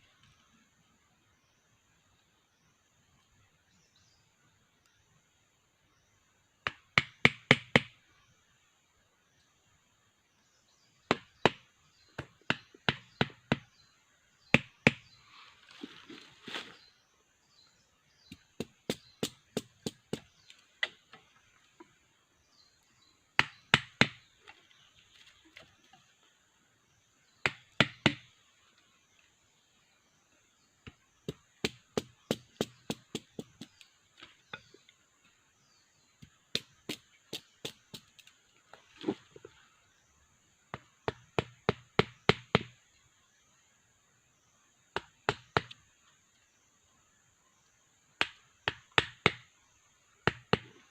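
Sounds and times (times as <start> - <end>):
blade chopping wood: 23.4 - 24.3, 27.4 - 28.3, 48.2 - 49.5.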